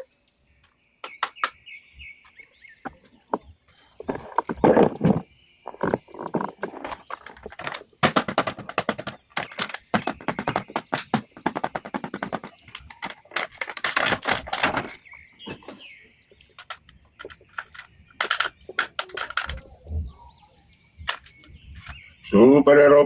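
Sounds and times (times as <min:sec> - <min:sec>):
plastic toys clattering: 0:04.0 - 0:19.9, 0:21.0 - 0:22.1.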